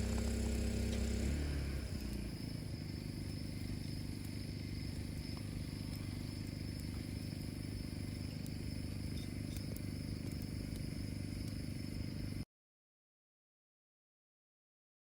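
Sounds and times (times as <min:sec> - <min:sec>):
high-pitched insect drone: 0:00.0 - 0:12.4
low hum: 0:00.0 - 0:12.4.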